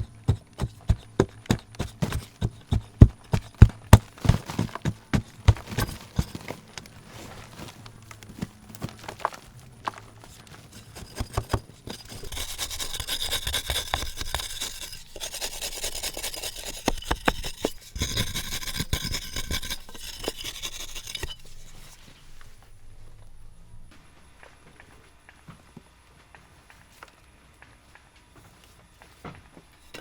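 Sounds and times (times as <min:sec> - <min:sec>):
hand tool scraping: 0:00.0 - 0:22.6, 0:29.8 - 0:30.0.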